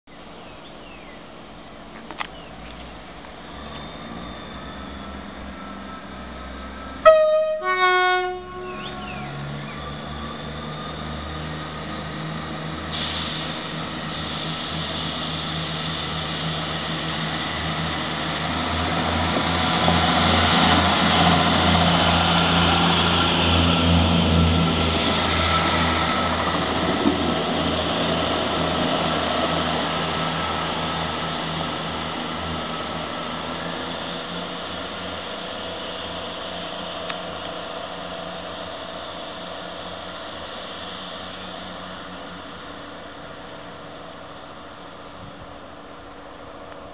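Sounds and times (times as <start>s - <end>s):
diesel train engines and wheels: 0.1s - 46.9s
two-tone train horn: 7.0s - 9.5s.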